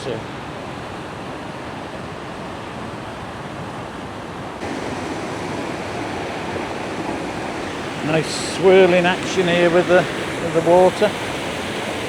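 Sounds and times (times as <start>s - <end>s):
river cascade over rocks: 4.6s - 12.0s.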